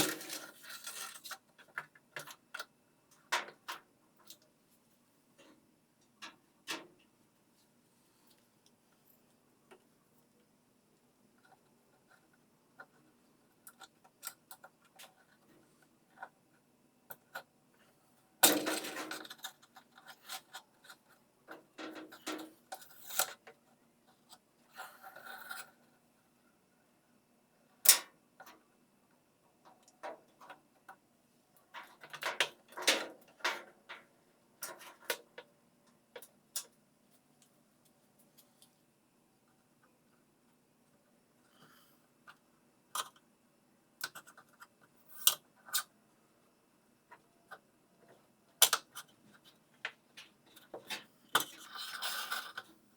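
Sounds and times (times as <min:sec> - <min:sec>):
clicks and knocks of parts and tools: 0:00.0 - 0:04.5, 0:18.4 - 0:23.6, 0:31.6 - 0:36.8.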